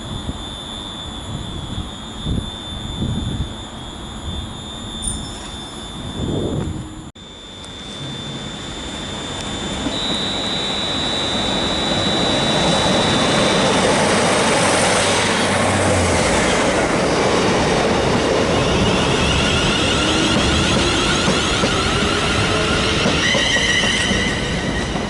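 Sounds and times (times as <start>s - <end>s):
high steady whine: 0.0s - 22.9s
train running past: 7.7s - 25.0s.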